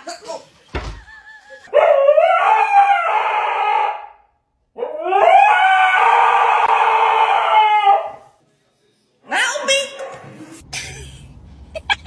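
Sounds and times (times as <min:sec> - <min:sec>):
dog howling: 0:04.8 - 0:08.2.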